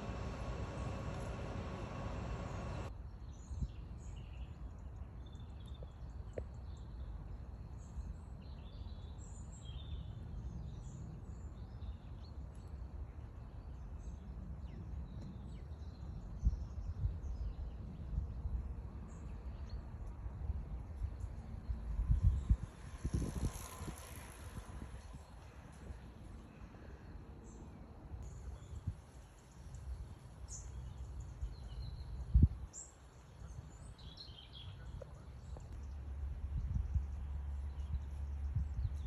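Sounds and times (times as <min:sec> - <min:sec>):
low outdoor rumble: 0:00.0 - 0:02.9
small birds chirping: 0:00.0 - 0:02.9, 0:20.8 - 0:39.0
steady rushing noise with hum: 0:00.0 - 0:02.9.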